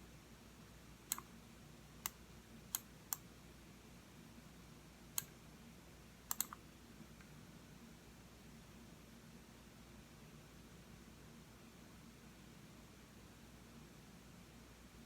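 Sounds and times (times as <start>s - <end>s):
faint hum: 0.0s - 15.0s
mouse button clicking: 6.3s - 6.6s.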